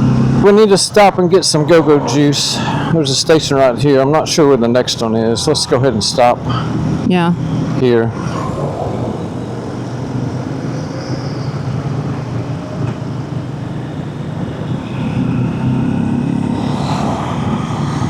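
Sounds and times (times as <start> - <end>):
motorcycle engine running: 0.0 - 1.6, 6.0 - 18.0.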